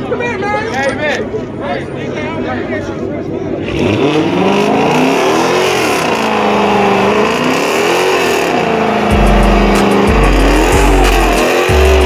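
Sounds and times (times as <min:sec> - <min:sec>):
car engine revving: 0:03.4 - 0:12.0
deep bass music: 0:03.7 - 0:12.0.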